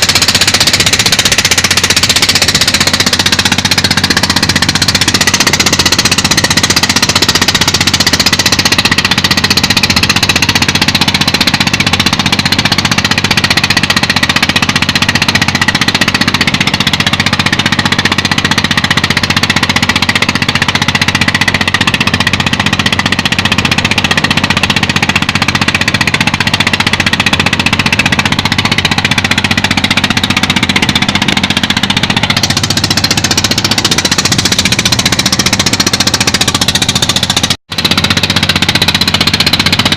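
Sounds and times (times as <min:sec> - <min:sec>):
boat engine pulsing: 0:00.0 - 0:39.9.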